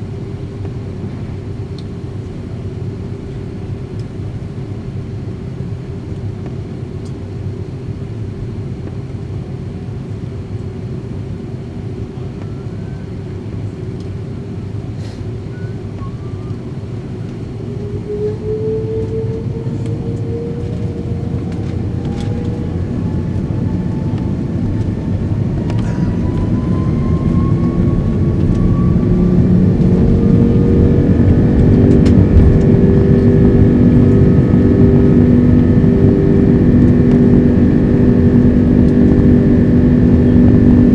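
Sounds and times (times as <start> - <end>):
jet engines spooling up: 12.4 - 40.9.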